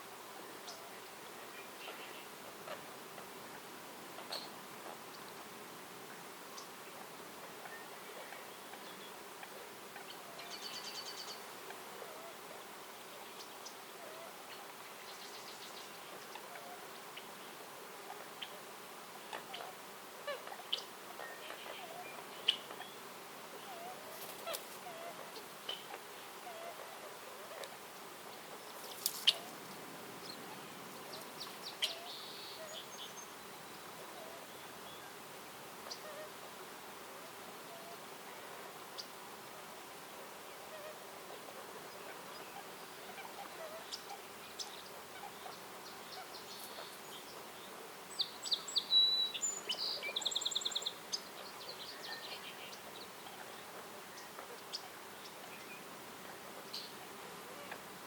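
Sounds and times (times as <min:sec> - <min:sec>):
faint insect buzz: 0:10.4 - 0:44.8
birds chirping: 0:18.2 - 0:35.2, 0:40.2 - 0:57.9.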